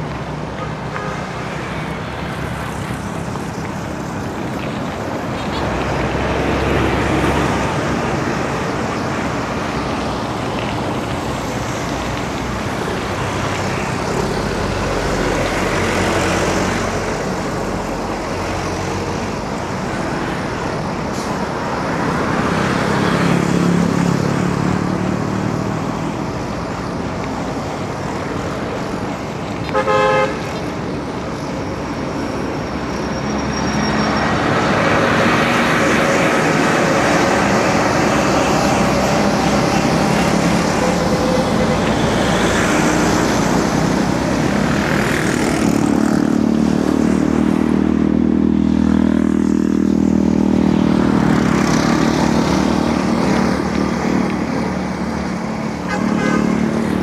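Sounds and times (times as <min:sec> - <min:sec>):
road traffic: 0:00.0 - 0:57.0
vehicle horn toot: 0:29.7 - 0:30.4, 0:55.9 - 0:56.6.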